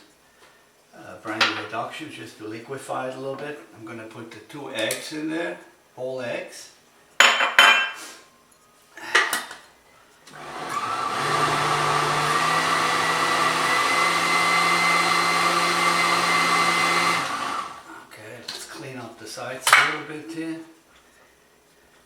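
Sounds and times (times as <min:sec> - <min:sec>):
electric blender running: 0:10.3 - 0:18.0.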